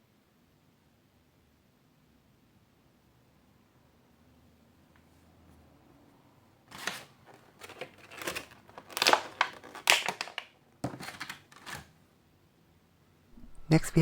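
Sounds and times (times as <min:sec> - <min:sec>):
plastic packaging crinkling: 0:06.7 - 0:11.8.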